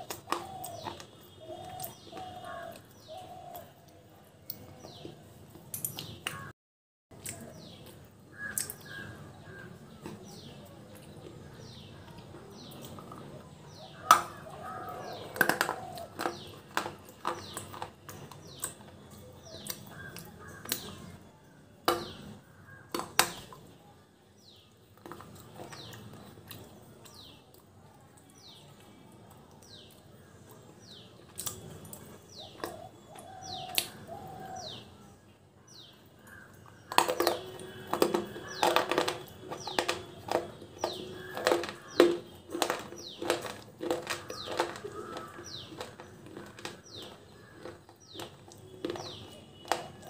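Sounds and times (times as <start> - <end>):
crunching and chewing dried clay: 0.0 - 6.5, 7.1 - 50.0
bird chirping: 30.8 - 50.0.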